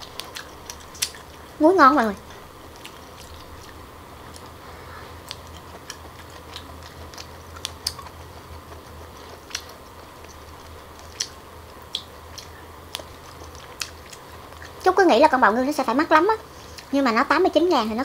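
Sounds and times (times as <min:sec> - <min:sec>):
chewing abalone wet clicks: 0:00.0 - 0:01.4, 0:02.2 - 0:04.5, 0:05.2 - 0:14.9
low steady hum: 0:00.0 - 0:18.0.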